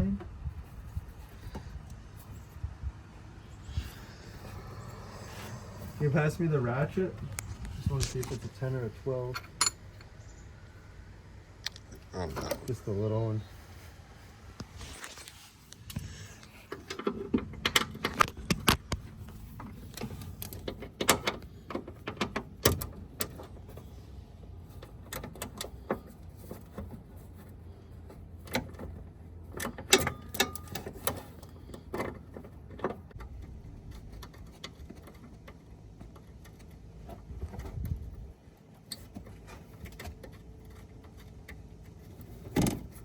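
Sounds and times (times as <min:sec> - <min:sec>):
metal tools clinking: 0:07.4 - 0:10.4.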